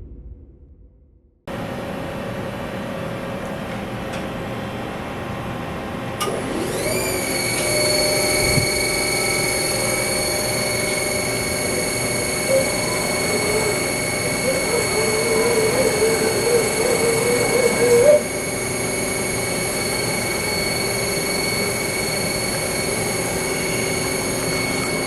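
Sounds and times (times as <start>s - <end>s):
machine hum: 0.0s - 25.0s
spindle whine: 6.2s - 25.0s.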